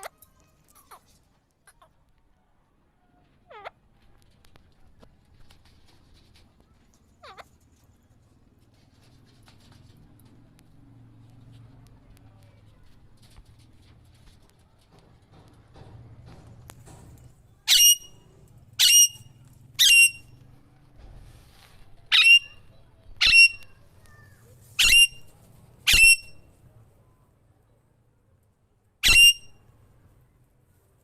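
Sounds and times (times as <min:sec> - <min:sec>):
parakeet calling: 0:17.7 - 0:18.2, 0:18.8 - 0:20.3, 0:22.1 - 0:23.7, 0:24.8 - 0:25.2, 0:25.9 - 0:26.4, 0:29.0 - 0:29.5.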